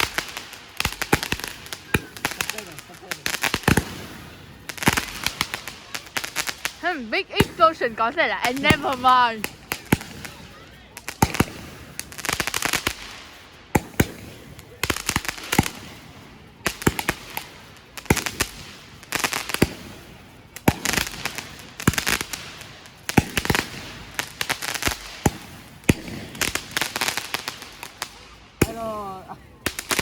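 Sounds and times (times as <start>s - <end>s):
fireworks bangs and crackling: 0.0s - 30.0s
person calling out: 6.8s - 9.4s.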